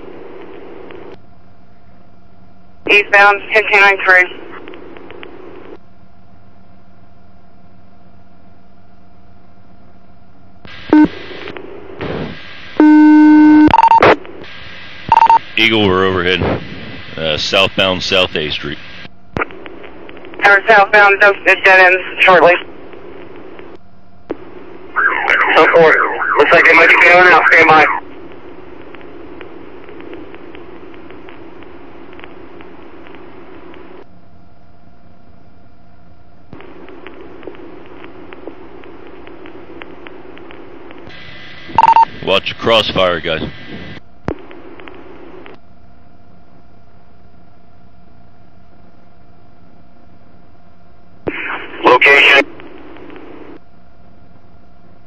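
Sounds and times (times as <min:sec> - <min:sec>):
low steady hum: 0:00.0 - 0:55.0
radio static hiss: 0:02.8 - 0:05.8, 0:10.6 - 0:34.1, 0:36.5 - 0:45.6, 0:51.2 - 0:53.6
loud buzzing tone: 0:10.7 - 0:11.4, 0:12.0 - 0:15.5
short high beeps: 0:12.8 - 0:14.1
faint crackles: 0:18.6 - 0:21.6, 0:27.5 - 0:34.1, 0:36.6 - 0:41.8.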